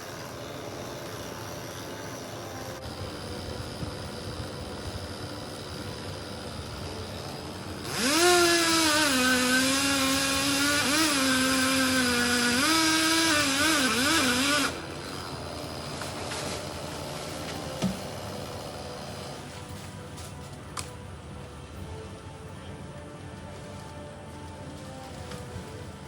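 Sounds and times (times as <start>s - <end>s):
chainsaw running at high revs: 0.0s - 19.9s.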